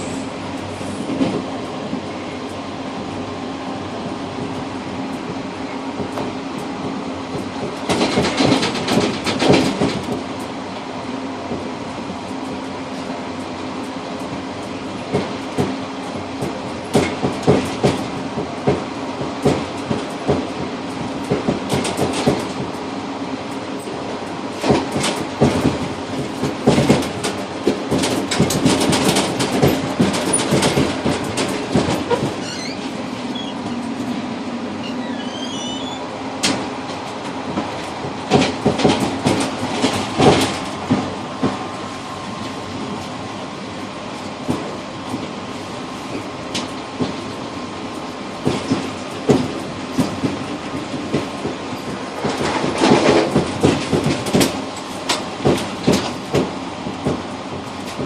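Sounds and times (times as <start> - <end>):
train rumbling on rails: 0.0 - 58.0
wheels clacking over rail joints: 6.0 - 10.5, 11.5 - 22.8, 23.5 - 41.7, 48.4 - 58.0
faint wheel squeals: 32.1 - 33.9, 34.8 - 36.1.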